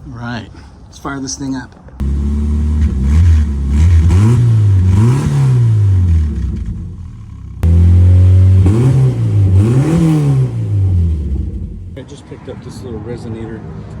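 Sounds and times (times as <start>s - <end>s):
car exhaust idling and revving: 2.0s - 12.0s.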